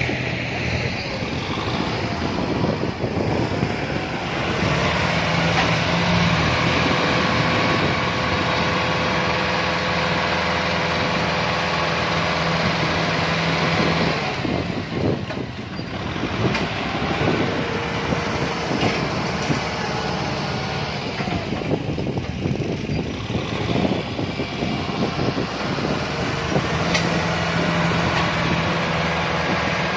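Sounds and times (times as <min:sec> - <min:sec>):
tractor diesel engine running: 0:00.0 - 0:29.9
engine knocks: 0:12.2 - 0:29.9.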